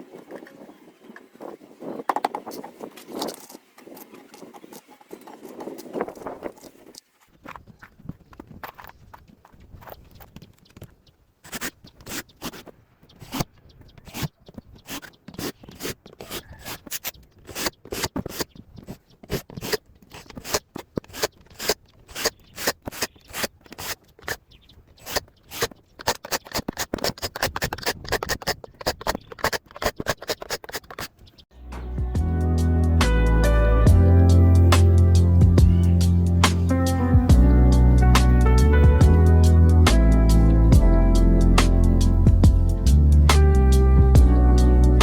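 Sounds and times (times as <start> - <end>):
sharp clicks and scrapes: 2.1 - 31.4.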